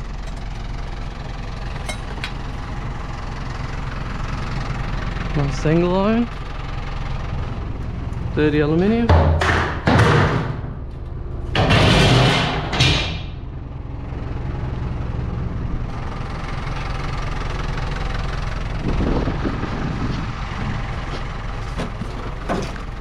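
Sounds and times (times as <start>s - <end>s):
truck engine idling: 0.0s - 9.8s, 13.2s - 23.0s
scrap metal clattering: 21.6s - 23.0s.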